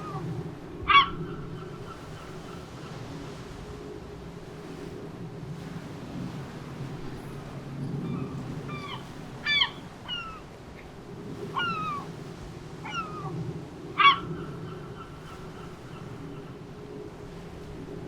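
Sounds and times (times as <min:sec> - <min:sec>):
gulls mewing: 0:11.4 - 0:12.1, 0:12.8 - 0:16.6.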